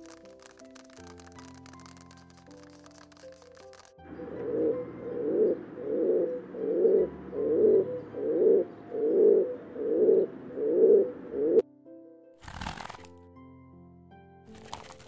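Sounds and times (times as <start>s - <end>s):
pigeon cooing: 4.1s - 11.6s.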